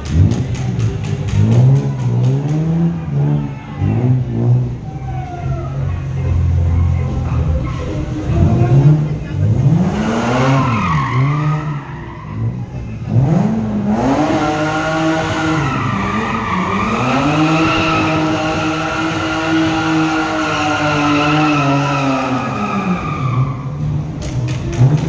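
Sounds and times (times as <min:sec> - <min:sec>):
tyres skidding and squealing: 0:00.0 - 0:25.0
car engine revving hard: 0:08.2 - 0:25.0.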